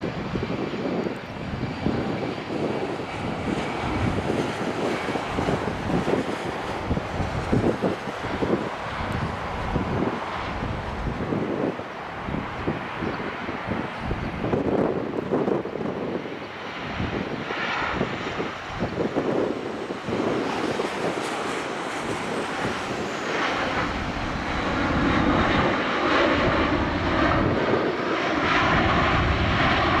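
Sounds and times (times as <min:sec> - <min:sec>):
jet engines with high whine: 0:00.0 - 0:30.0.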